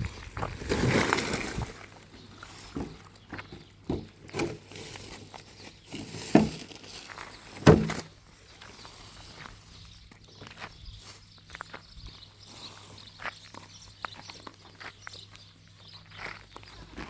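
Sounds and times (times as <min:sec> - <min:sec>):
irregular knocks and thuds: 0:02.7 - 0:04.6, 0:07.6 - 0:08.1.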